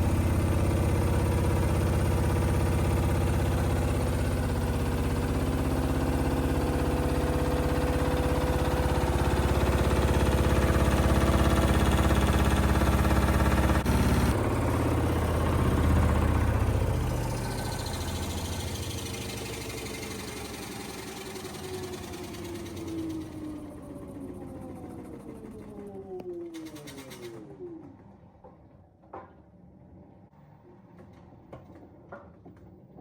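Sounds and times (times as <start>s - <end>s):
washing machine drum spinning: 0.0s - 26.0s.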